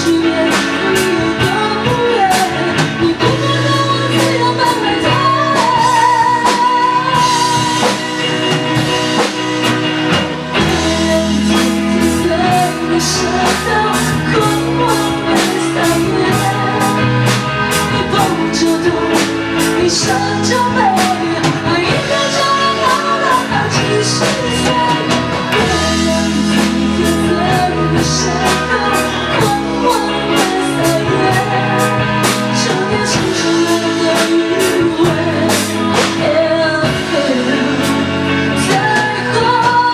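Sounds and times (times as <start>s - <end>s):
band with drums and guitar: 0.0s - 39.9s
person singing: 0.0s - 39.9s.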